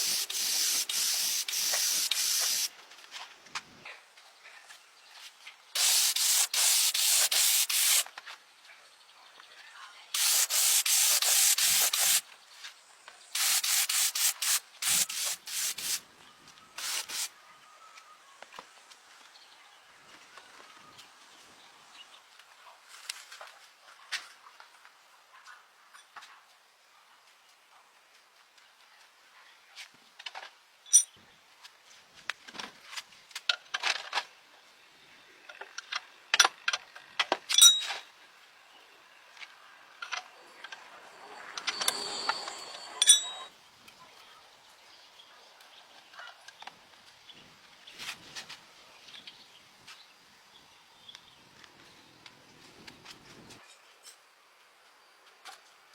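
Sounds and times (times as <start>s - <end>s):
hand sanding rasping strokes: 0.0s - 2.7s, 5.8s - 8.0s, 10.2s - 12.2s, 13.4s - 16.0s
metal tools clinking: 30.9s - 31.2s, 37.5s - 38.0s, 40.5s - 43.5s.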